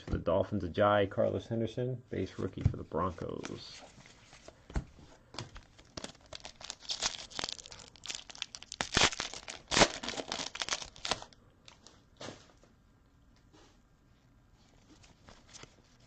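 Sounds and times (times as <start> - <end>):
wrapper torn open and crinkled: 5.8 - 11.8.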